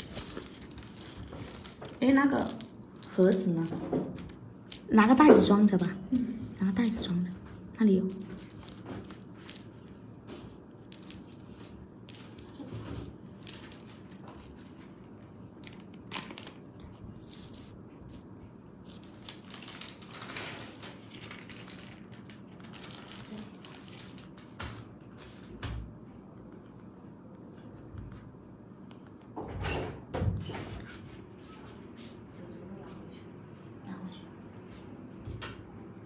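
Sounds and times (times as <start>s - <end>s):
packaging rustling: 0.0s - 3.7s, 15.5s - 17.0s, 18.8s - 24.6s
jade pieces clicking on table: 0.4s - 7.1s, 8.0s - 10.0s, 10.8s - 14.7s.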